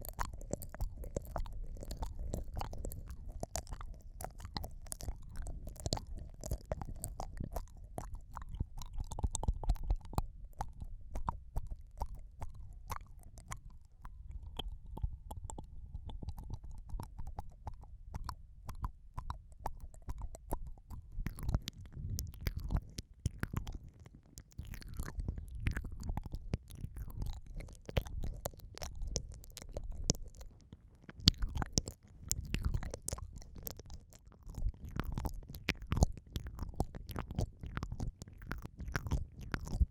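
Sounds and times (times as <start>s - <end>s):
wet mouth sounds: 0.0s - 39.9s.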